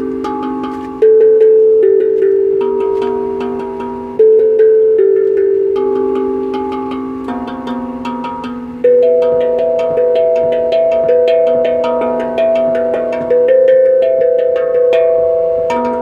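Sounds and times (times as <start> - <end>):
tuned metal percussion melody: 0.0 - 16.0.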